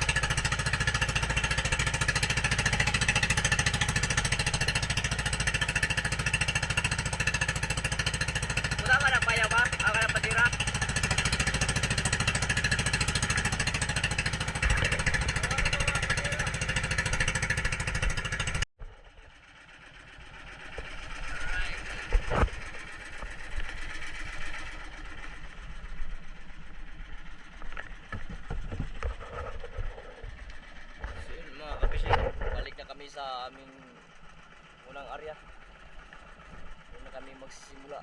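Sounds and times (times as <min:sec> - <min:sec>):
boat engine chugging: 0:00.0 - 0:38.0
scattered knocks and clatter: 0:21.9 - 0:23.8, 0:27.6 - 0:32.9.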